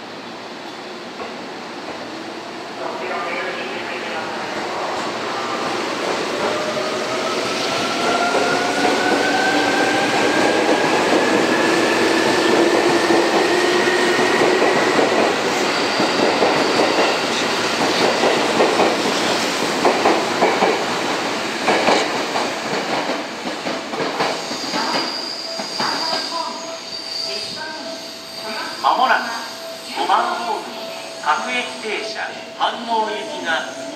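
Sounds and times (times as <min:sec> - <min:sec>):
train wheels clacking on rail joints: 0:21.6 - 0:26.2.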